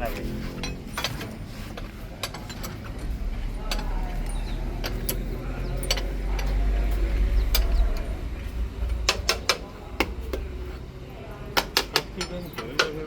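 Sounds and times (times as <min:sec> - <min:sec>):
metallic clinks and knocks: 0:00.0 - 0:08.1
low engine rumble: 0:00.0 - 0:13.0.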